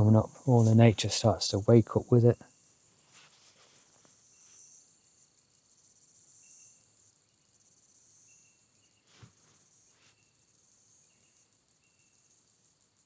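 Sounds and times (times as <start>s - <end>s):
crickets chirring: 0.0s - 3.0s, 4.2s - 9.0s, 9.7s - 13.0s.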